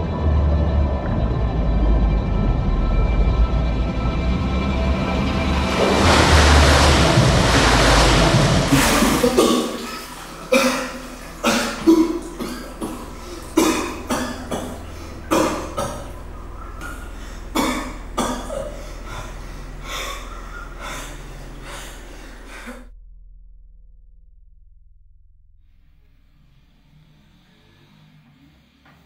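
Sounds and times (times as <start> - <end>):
man coughing and gasping: 8.9 - 19.4.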